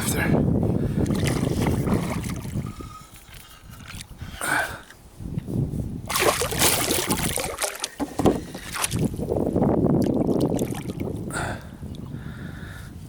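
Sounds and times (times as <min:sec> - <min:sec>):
water splashing against kayak: 0:00.9 - 0:04.2, 0:06.1 - 0:11.3.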